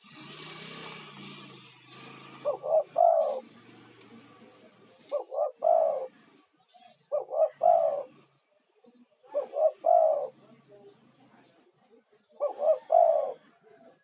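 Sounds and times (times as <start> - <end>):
dove cooing: 1.6 - 8.4, 9.2 - 10.6, 12.3 - 14.0.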